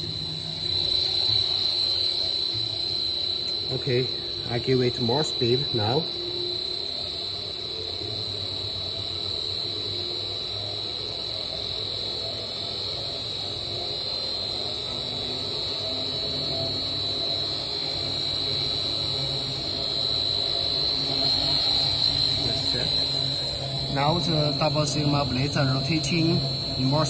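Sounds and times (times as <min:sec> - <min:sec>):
mixer motor whining: 0:00.0 - 0:06.8, 0:17.1 - 0:27.0.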